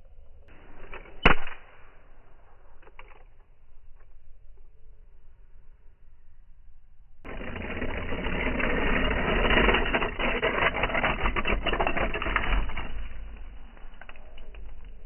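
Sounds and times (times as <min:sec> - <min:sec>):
toy cars rattling: 0:07.3 - 0:15.0.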